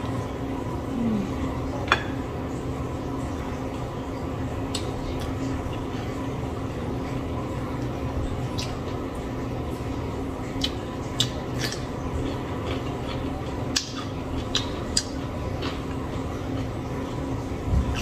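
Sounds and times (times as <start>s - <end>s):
low background hum: 0.0s - 18.0s
person chewing crunchy food: 10.6s - 17.2s.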